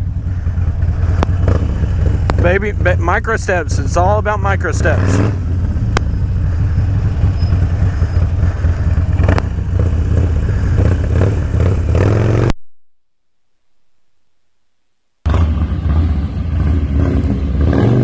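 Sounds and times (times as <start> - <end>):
motorcycle engine running: 0.0 - 12.6, 15.2 - 18.0
sharp clicks: 1.1 - 2.4, 5.9 - 6.2, 8.7 - 9.6.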